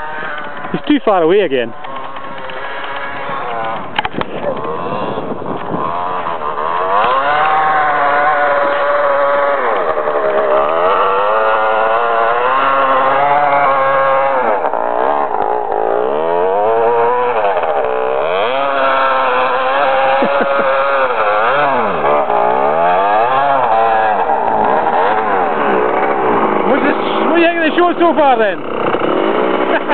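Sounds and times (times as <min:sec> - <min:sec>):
dirt bike engine revving: 0:00.0 - 0:29.9.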